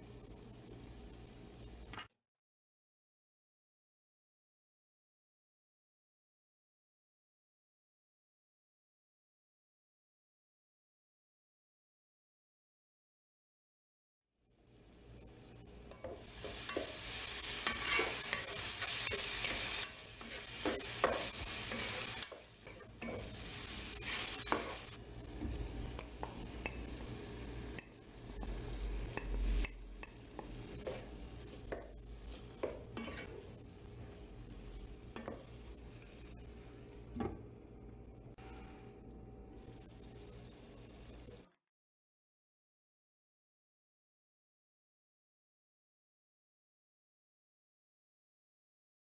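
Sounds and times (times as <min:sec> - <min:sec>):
vegetables sizzling in oil: 0:00.0 - 0:02.1, 0:14.5 - 0:37.2, 0:39.4 - 0:41.5
spatula scraping pan: 0:15.9 - 0:34.1, 0:35.0 - 0:36.4.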